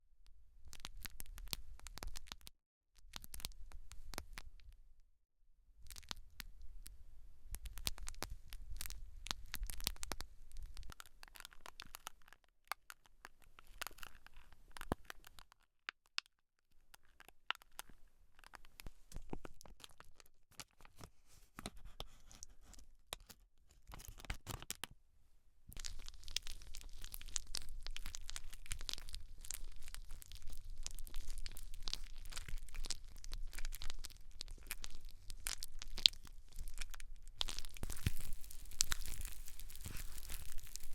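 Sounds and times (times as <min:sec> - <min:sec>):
scratching on hair and scalp: 0:37.8 - 0:40.9.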